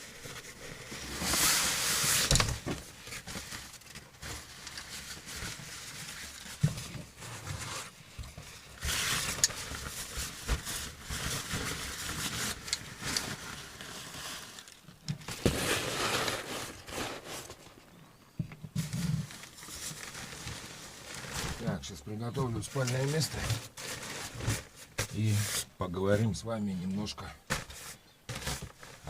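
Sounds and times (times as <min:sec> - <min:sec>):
rustling and crinkling: 0:00.0 - 0:29.0
scraping: 0:08.5 - 0:18.0.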